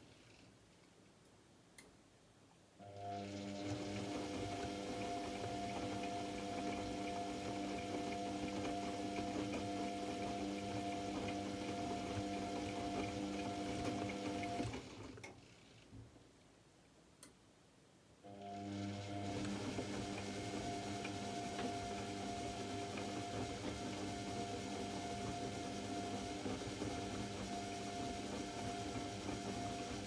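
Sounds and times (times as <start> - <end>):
washing machine water rushing: 3.1 - 14.9, 18.5 - 30.0.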